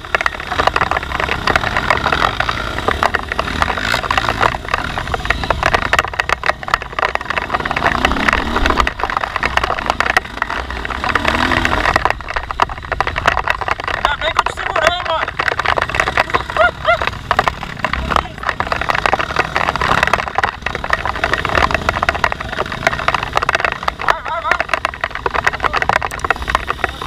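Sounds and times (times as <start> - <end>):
crackling and knocking on trail: 0.0 - 27.0
dirt bike engine rumble: 0.0 - 27.0.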